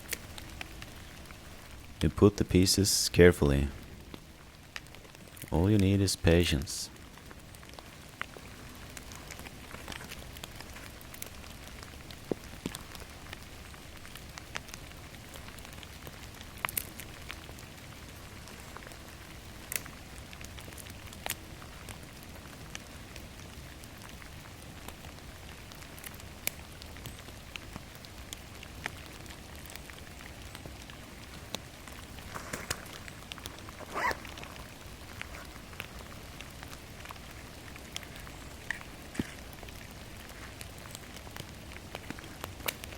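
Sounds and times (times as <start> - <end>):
steady rain in forest: 0.0 - 2.4, 3.2 - 42.9
loud rustle: 32.1 - 35.8.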